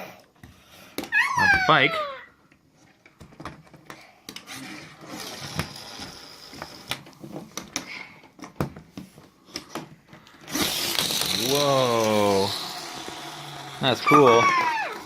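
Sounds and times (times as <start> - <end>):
plastic toys clicking: 9.5 - 13.4.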